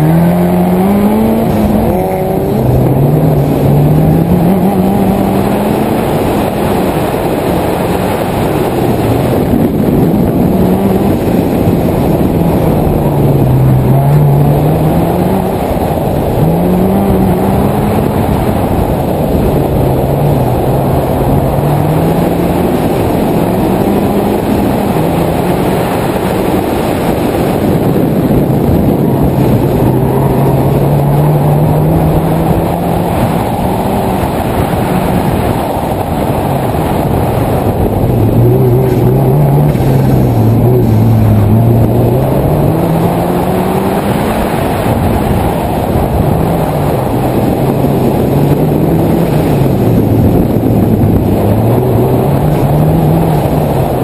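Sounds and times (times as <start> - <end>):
turbocharged car engine revving: 0.0 - 54.0.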